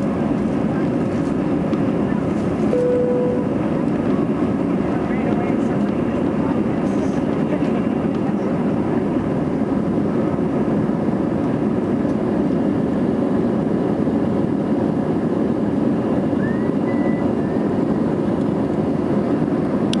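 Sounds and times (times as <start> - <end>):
jet engines and airflow in cabin: 0.0 - 20.0
faint short rising tone: 2.7 - 3.6.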